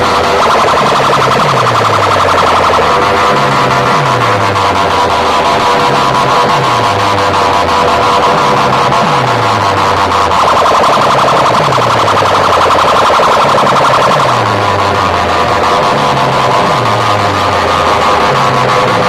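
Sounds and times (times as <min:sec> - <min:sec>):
deep falling bass sweep: 0:00.0 - 0:19.0
electronic siren sound effect: 0:00.0 - 0:19.0
fast warbling alarm tone: 0:00.0 - 0:19.0.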